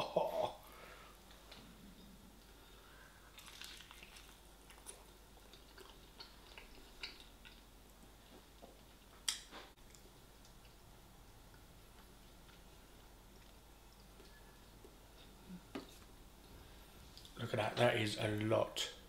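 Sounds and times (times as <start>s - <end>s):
chewing food: 3.3s - 10.8s.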